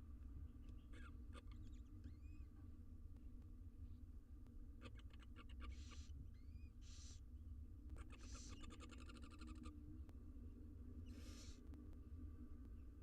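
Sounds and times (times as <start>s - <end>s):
owl nestlings hissing: 6.8s - 7.2s, 11.1s - 11.6s.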